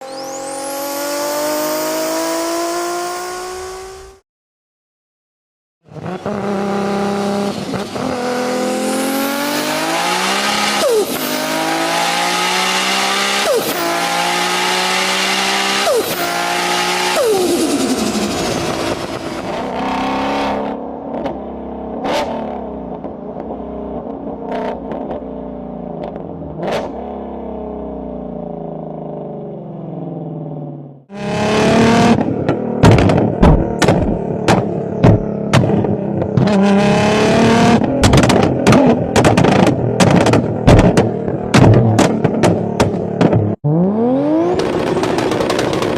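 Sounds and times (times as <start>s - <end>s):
car engine accelerating: 0.0s - 4.2s, 5.9s - 45.9s
louder engine: 0.0s - 4.2s, 5.9s - 21.3s, 26.6s - 40.2s, 43.6s - 45.9s
sharp cracks: 44.6s - 45.9s.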